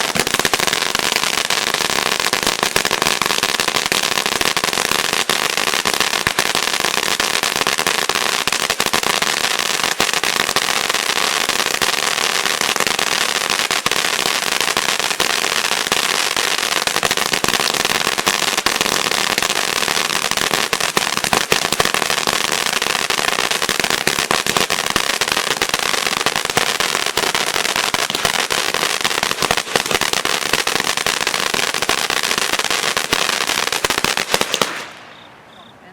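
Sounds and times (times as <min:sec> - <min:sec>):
fountain firework hissing and crackling: 0:00.0 - 0:35.0.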